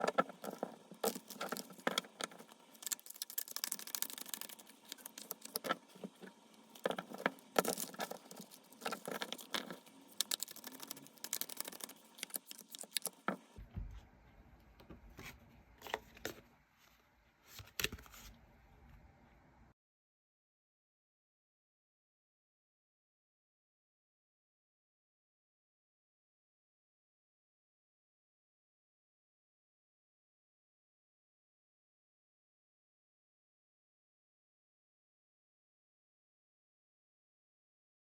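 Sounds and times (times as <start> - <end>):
cards being shuffled: 0.0 - 13.4.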